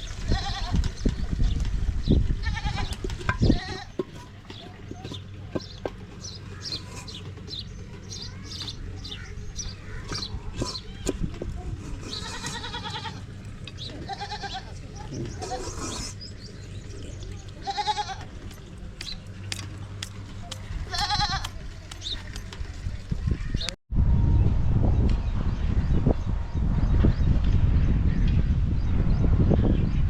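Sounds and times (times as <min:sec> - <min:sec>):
goats bleating: 0:00.2 - 0:00.8, 0:02.4 - 0:04.0, 0:11.9 - 0:16.1, 0:17.4 - 0:18.6, 0:20.6 - 0:21.6.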